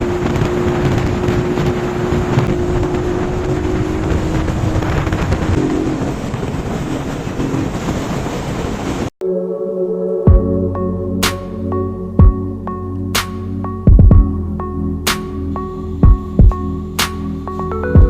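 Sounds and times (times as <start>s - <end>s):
wind noise on microphone: 0.0s - 9.1s.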